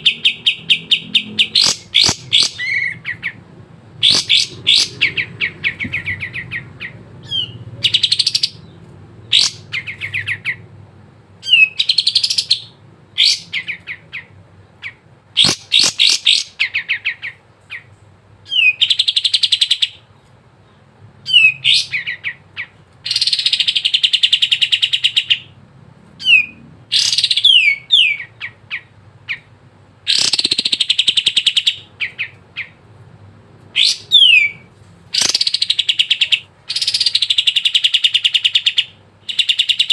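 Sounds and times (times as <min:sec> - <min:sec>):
bulbul chattering trills and whistles: 0:00.0 - 0:03.4, 0:04.0 - 0:08.7, 0:09.3 - 0:10.6, 0:11.4 - 0:17.9, 0:30.1 - 0:32.8, 0:33.8 - 0:39.9.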